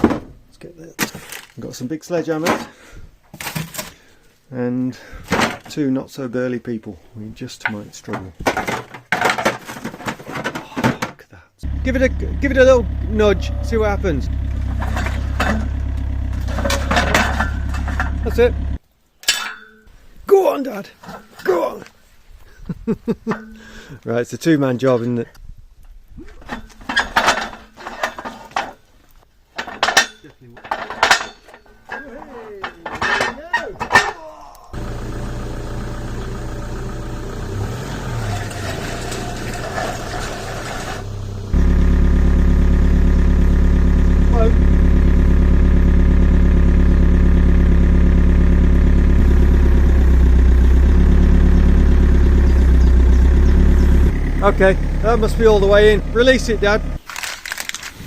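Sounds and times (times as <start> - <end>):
excavator diesel engine running: 11.6 - 18.8, 34.8 - 57.0
sledgehammer clanking on steel: 11.8 - 19.9, 26.4 - 28.8, 29.6 - 34.2, 37.6 - 41.6.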